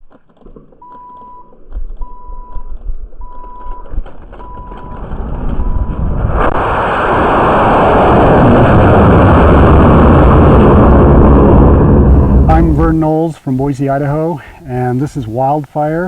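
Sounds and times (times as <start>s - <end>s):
short electronic beeps: 3.2s - 5.0s
rocket motor roaring: 4.8s - 13.2s.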